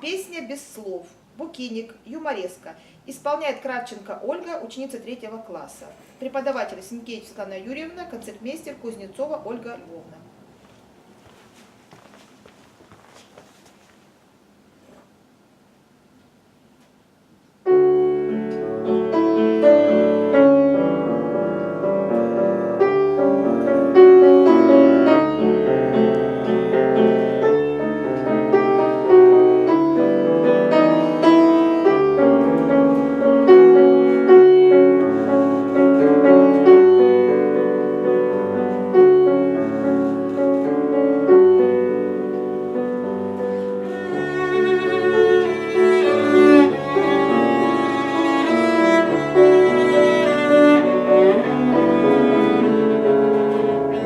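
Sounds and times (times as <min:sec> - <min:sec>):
piano chords: 0:17.6 - 0:54.0
cello long singing notes: 0:43.7 - 0:54.0.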